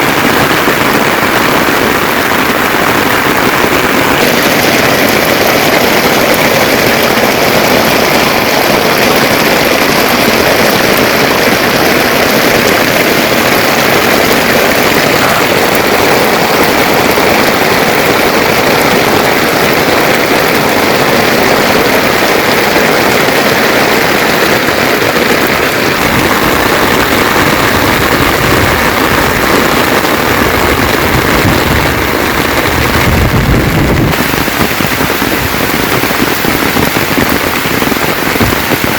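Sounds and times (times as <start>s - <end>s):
heavy rain falling: 0.0s - 38.9s
low rumble: 25.9s - 35.6s.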